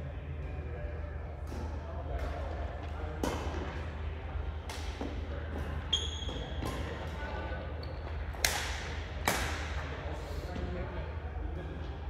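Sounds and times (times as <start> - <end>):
shoes squeaking on court floor: 5.6 - 7.1, 7.8 - 8.3
racket hitting shuttlecock: 8.4 - 9.8.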